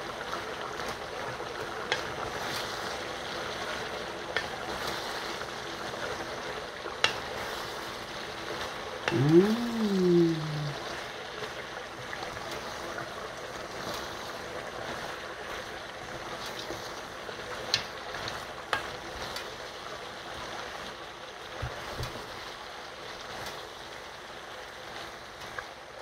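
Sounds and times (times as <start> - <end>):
meat and spinach sizzling in a pot: 0.0 - 26.0
wooden spoon clicking on pan: 7.0 - 7.2.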